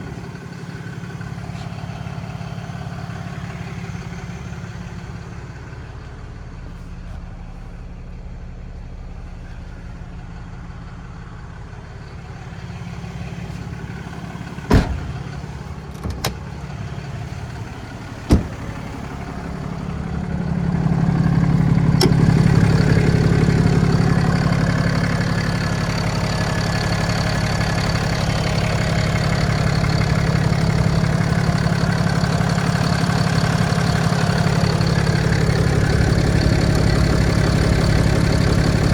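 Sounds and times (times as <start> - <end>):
truck engine idling: 0.0 - 38.9
sharp knocks: 18.3 - 18.7.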